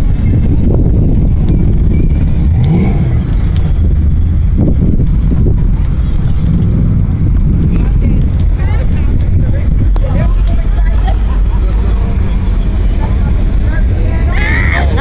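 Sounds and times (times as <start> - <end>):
car engine and exhaust rumble: 0.0 - 15.0
engine revving: 1.4 - 5.8.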